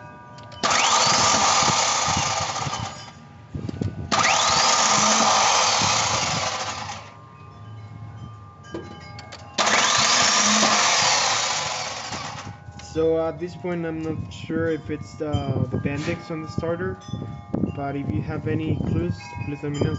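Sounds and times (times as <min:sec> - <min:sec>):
starter motor whining: 0:00.4 - 0:03.2, 0:03.8 - 0:07.2, 0:09.6 - 0:12.6.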